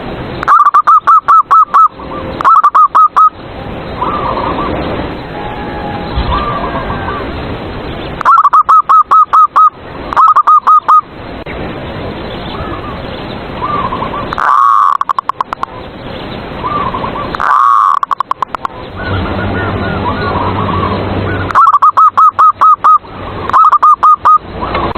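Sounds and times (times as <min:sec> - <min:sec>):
doves cooing: 0:04.0 - 0:07.4, 0:13.6 - 0:15.8, 0:16.6 - 0:24.9.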